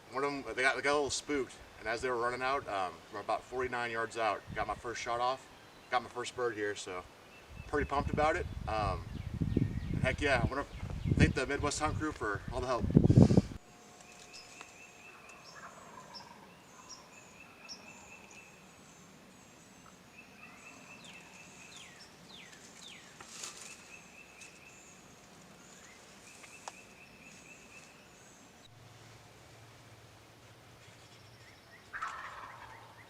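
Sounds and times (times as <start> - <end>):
faint birds chirping and trilling: 0.1 - 33.0
downward-sweeping bird calls: 13.6 - 28.8, 30.8 - 33.0.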